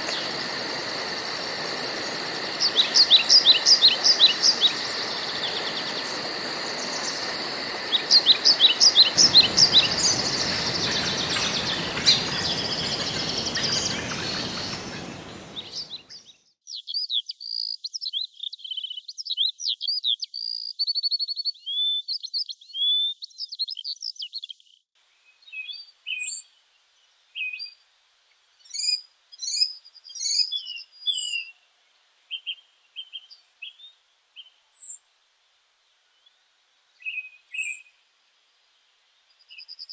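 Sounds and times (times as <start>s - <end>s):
background hiss: 0.0s - 16.2s, 25.0s - 39.9s
songbirds singing: 0.0s - 27.8s, 28.6s - 31.7s, 36.1s - 38.0s.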